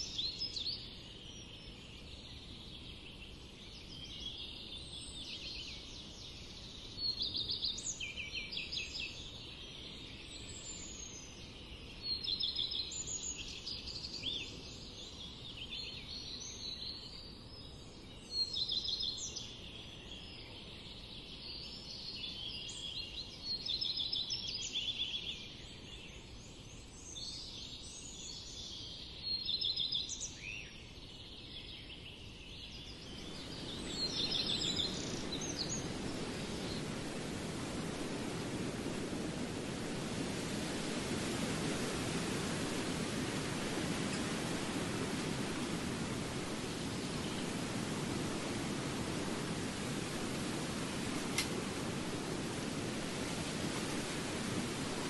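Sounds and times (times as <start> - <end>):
low steady hiss: 0.0 - 55.0
songbirds chirping in trills: 0.0 - 55.0
low rushing noise: 32.9 - 55.0.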